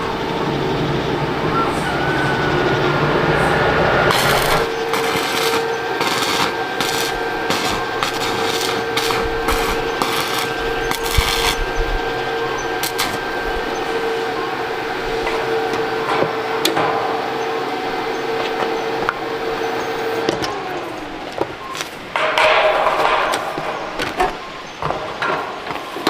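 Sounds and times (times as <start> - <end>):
metalworking power tool humming: 0.0 - 26.0
harsh rasping bursts: 4.1 - 16.0.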